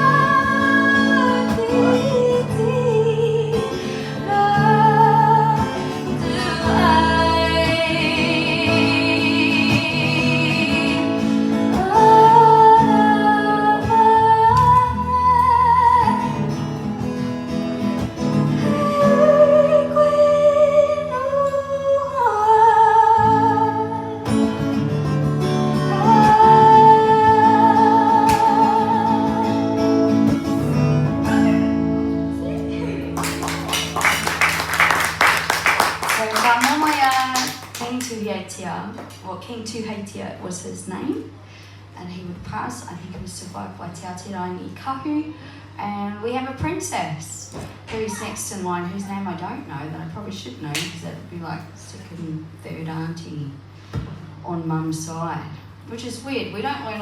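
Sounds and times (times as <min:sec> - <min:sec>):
woman singing: 0:00.0 - 0:16.4, 0:18.6 - 0:24.6, 0:25.7 - 0:30.4
acoustic guitar: 0:00.0 - 0:57.0.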